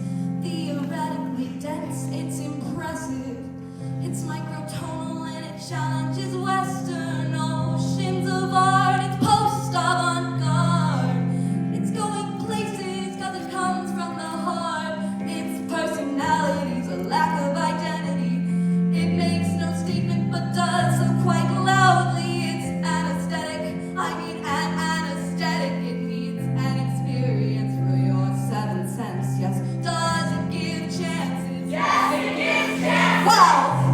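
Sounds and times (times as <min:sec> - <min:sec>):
woman singing with vibrato: 0:28.5 - 0:33.9
sustained accompaniment chords: 0:30.6 - 0:33.9.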